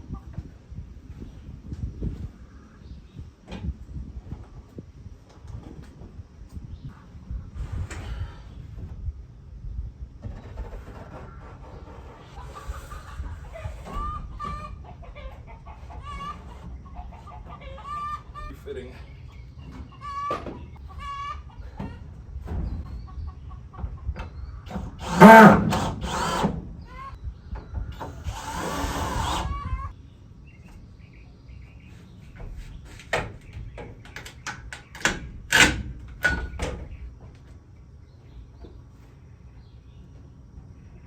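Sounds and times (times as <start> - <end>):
chickens clucking: 10.3 - 24.8, 26.8 - 28.3, 29.4 - 30.0
power drill running: 24.7 - 26.6, 28.0 - 29.5.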